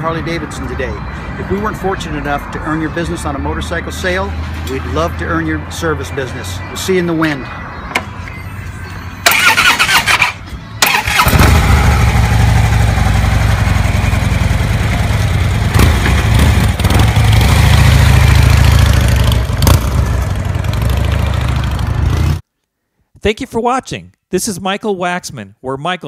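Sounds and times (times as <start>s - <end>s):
motorcycle engine cranking and running: 9.3s - 21.8s.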